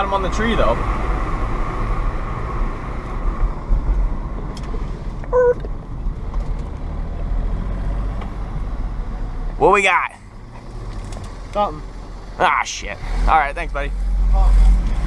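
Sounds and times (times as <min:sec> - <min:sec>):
car engine and road noise: 0:00.0 - 0:15.0
short beep: 0:05.3 - 0:05.7.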